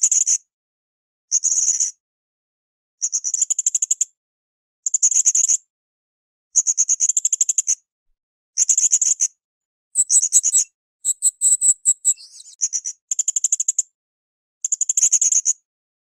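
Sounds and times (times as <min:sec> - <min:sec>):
parrot calling in high phrases: 0:10.0 - 0:12.6.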